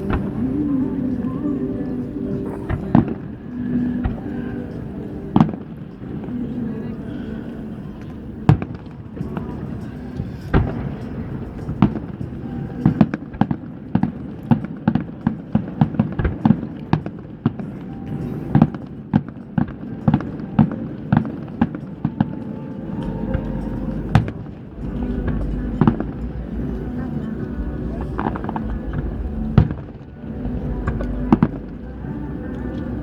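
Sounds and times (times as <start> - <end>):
fireworks bangs: 8.0 - 32.9.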